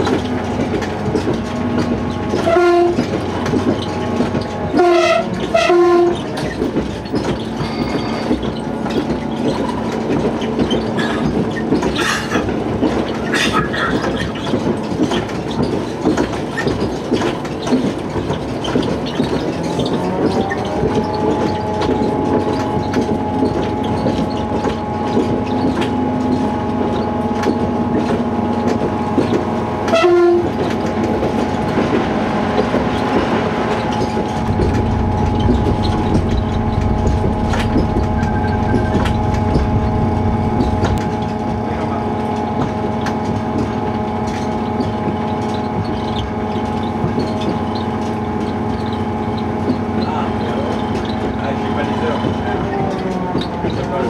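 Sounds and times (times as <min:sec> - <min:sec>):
wheels clicking over rail joints: 0:00.0 - 0:36.0, 0:40.9 - 0:54.0
diesel train engine: 0:00.0 - 0:54.0
train horn blast: 0:02.4 - 0:03.1, 0:04.7 - 0:06.3, 0:29.9 - 0:30.6, 0:34.4 - 0:41.6.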